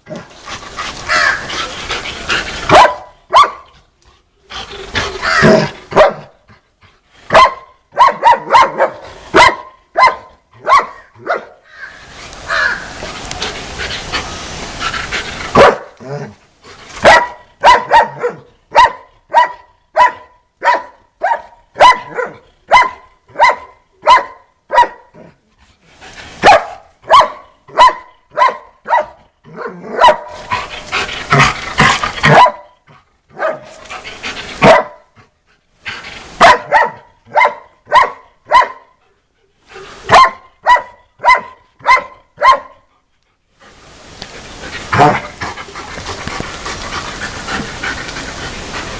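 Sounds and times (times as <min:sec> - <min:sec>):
dog barking rapidly: 0:02.7 - 0:03.7, 0:05.2 - 0:06.3, 0:07.3 - 0:11.6, 0:15.5 - 0:16.0, 0:17.0 - 0:25.0, 0:26.4 - 0:30.5, 0:31.3 - 0:33.8, 0:34.6 - 0:35.0, 0:36.4 - 0:38.9, 0:40.1 - 0:42.8, 0:45.0 - 0:45.3.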